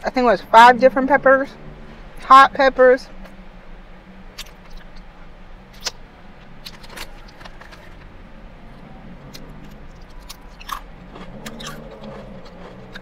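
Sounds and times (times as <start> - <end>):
low car interior hum: 0.0 - 13.0
chewing and mouth clicks: 4.3 - 5.1, 9.2 - 13.0.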